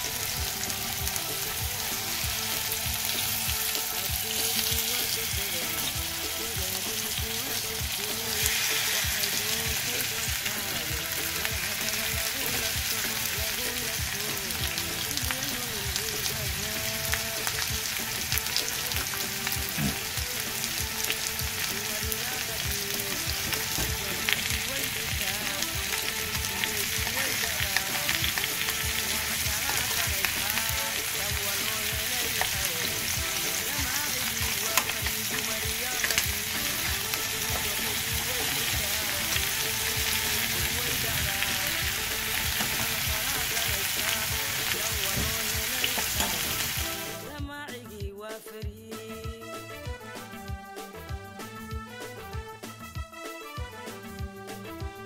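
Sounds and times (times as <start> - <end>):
chicken sizzling in hot oil: 0.0 - 47.3.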